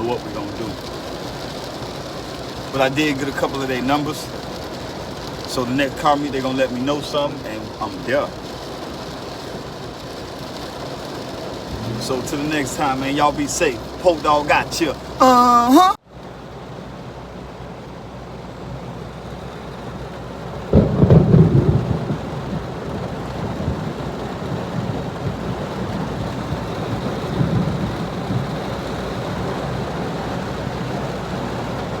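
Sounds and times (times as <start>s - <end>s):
steady rain: 0.0s - 32.0s
thunder rumble: 20.6s - 30.1s.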